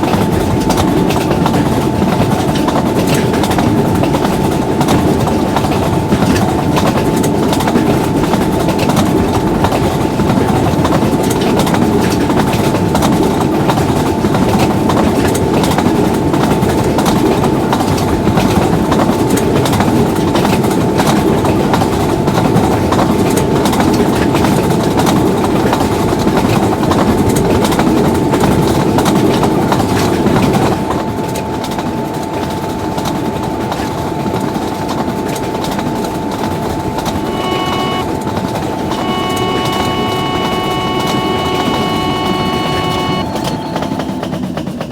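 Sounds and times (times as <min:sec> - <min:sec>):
thin steady tone: 0:37.0 - 0:44.3.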